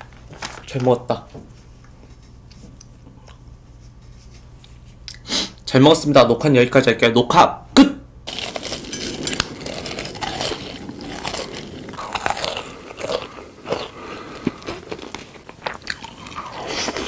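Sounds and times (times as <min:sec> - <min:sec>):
person chewing crunchy food: 0:08.3 - 0:17.0.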